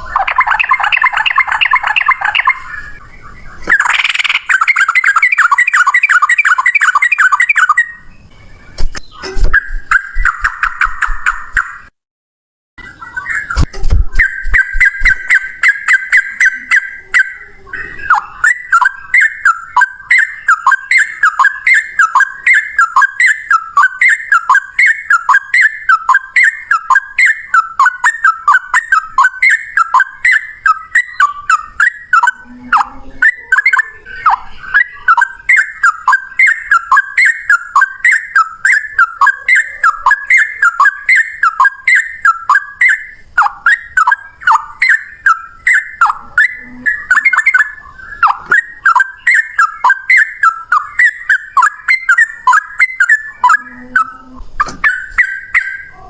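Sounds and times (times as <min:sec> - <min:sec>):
bird singing whistled phrases: 0:00.0 - 0:11.8, 0:12.8 - 0:56.0.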